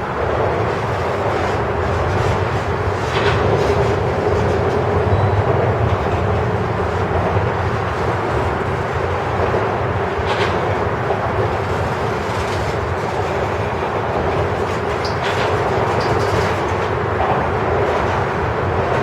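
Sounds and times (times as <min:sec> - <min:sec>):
train wheels rumbling on rail: 0:00.0 - 0:19.0
faint high wheel squeals: 0:05.0 - 0:05.5.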